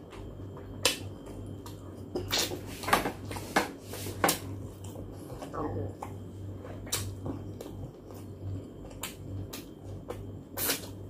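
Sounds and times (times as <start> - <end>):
steady low hum: 0.0 - 11.0
person chewing with wet smacks: 4.7 - 11.0.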